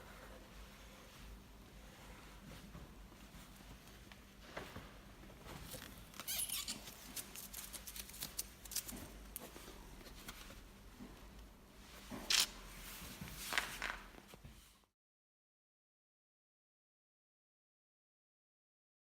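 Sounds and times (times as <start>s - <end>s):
soft handling clicks and rustles: 0.0s - 14.8s.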